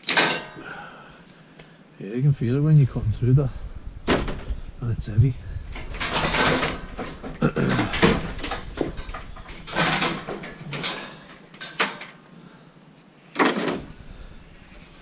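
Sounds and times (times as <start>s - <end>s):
metal clank: 0.0s - 0.7s, 5.5s - 12.2s
scrap metal scraping and rattling: 5.4s - 12.2s, 13.4s - 15.0s.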